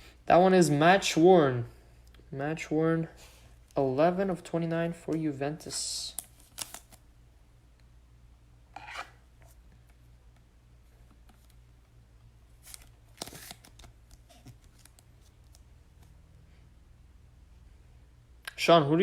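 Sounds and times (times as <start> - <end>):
trading cards rustling: 6.0 - 7.0, 12.5 - 16.2.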